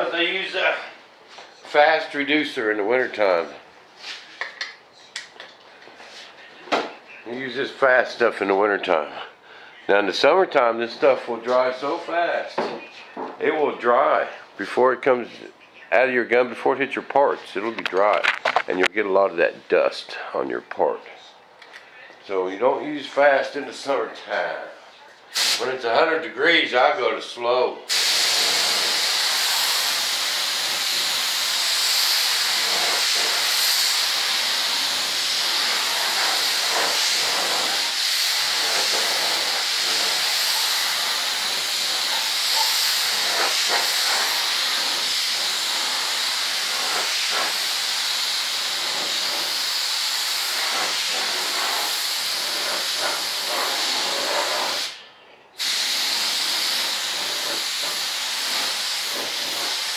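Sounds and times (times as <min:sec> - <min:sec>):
spray gun air hiss: 0:25.3 - 0:25.7, 0:27.9 - 0:55.0, 0:55.6 - 0:59.9.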